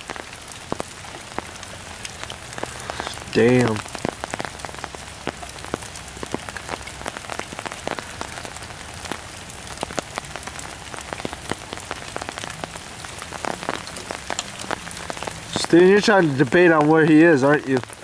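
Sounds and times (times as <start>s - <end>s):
rain on leaves: 0.0s - 18.0s.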